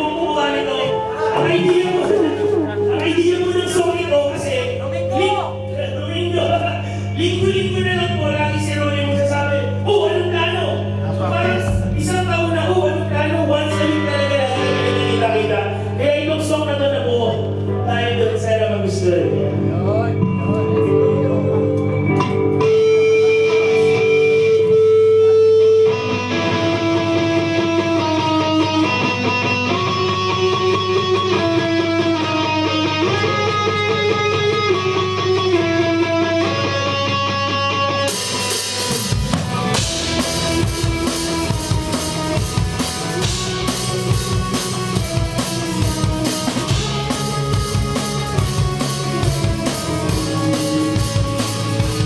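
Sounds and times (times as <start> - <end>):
rock band playing: 0.0 - 5.1, 10.9 - 16.0, 19.3 - 52.0
guitar melody: 0.0 - 5.9, 10.8 - 16.0, 19.1 - 52.0
drum kit: 11.5 - 15.3, 38.0 - 52.0.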